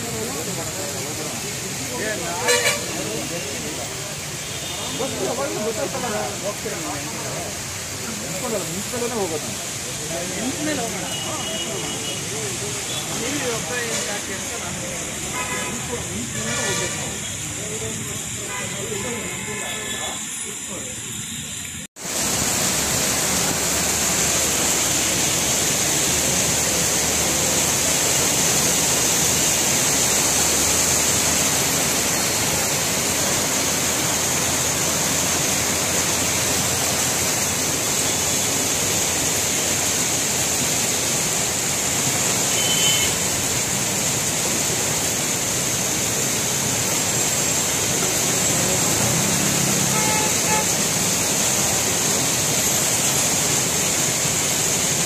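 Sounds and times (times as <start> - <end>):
heavy rain on wet road: 0.0 - 55.0
traffic: 0.0 - 55.0
car horn: 2.4 - 3.0, 4.4 - 5.2, 15.3 - 17.0, 42.5 - 43.3, 49.7 - 50.9.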